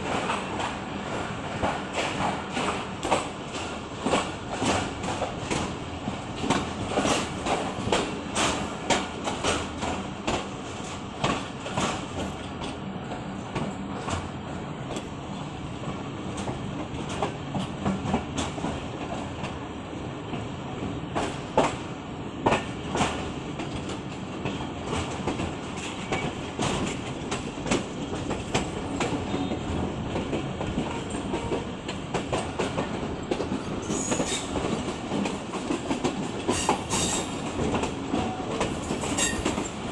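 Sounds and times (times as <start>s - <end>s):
train rumble: 0.0s - 39.9s
wheels clacking over rail joints: 22.4s - 39.9s.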